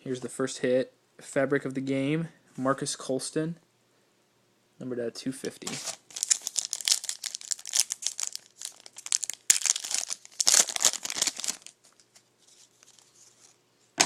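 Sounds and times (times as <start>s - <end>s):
foil wrapper tearing and crinkling: 5.6s - 13.6s.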